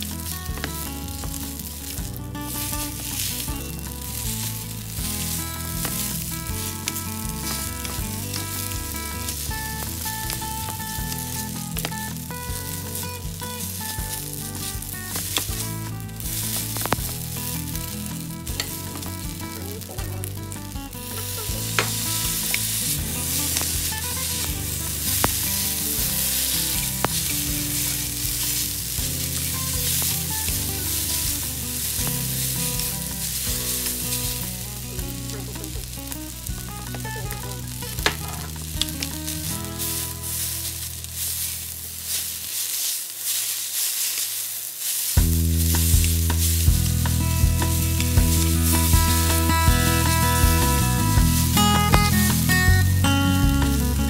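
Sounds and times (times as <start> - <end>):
noodles sizzling in frying pan: 0.0 - 20.4, 21.1 - 53.0.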